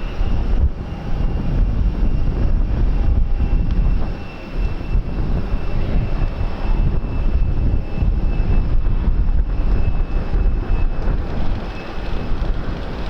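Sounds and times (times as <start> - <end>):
aircraft engine whine: 0.0 - 13.0
wind buffeting microphone: 0.0 - 13.0.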